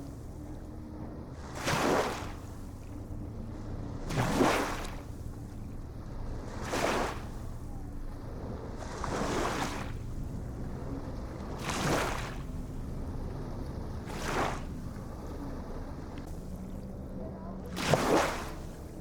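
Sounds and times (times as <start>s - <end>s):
low rumble of surf: 0.0s - 19.0s
small waves washing in: 0.0s - 19.0s.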